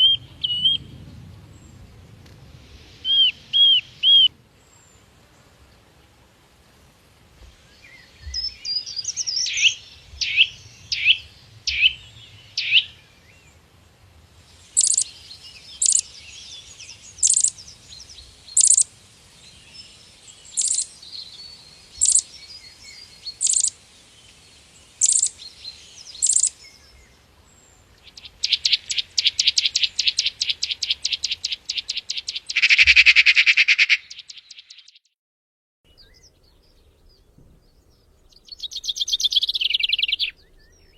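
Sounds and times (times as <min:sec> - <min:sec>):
songbirds calling: 0:00.0 - 0:06.0, 0:07.4 - 0:35.0, 0:35.9 - 0:40.9.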